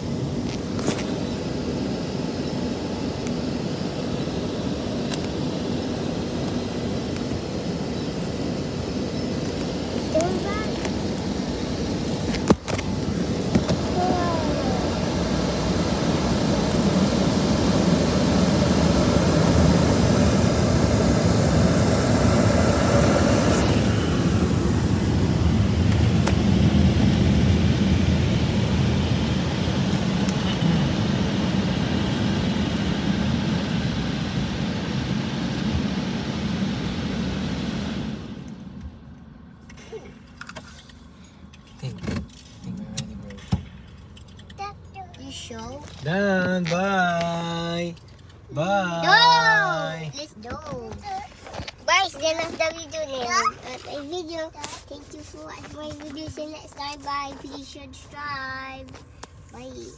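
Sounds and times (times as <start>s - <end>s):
car wash machinery rushing: 0.0s - 39.0s.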